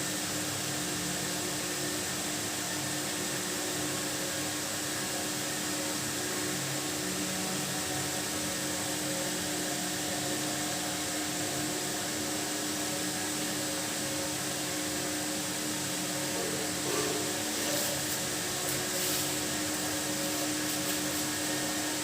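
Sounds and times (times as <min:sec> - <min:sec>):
fan hiss and hum: 0:00.0 - 0:22.0.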